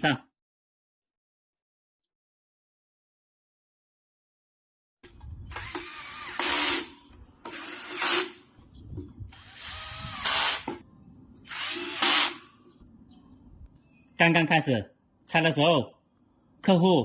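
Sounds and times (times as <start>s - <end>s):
cordless screwdriver motor whine: 5.4s - 6.8s, 9.3s - 10.8s.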